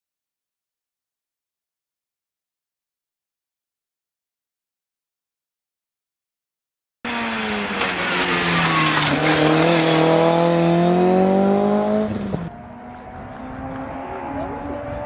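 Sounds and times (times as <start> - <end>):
car engine accelerating past: 7.1 - 15.0.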